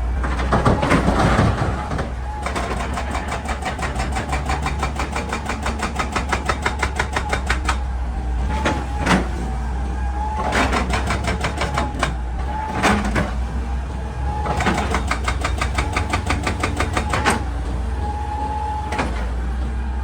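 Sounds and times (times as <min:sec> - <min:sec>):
diesel engine drone: 0:00.0 - 0:20.0
hydraulic breaker hammering rock: 0:00.1 - 0:09.4, 0:10.4 - 0:13.5, 0:14.4 - 0:17.9.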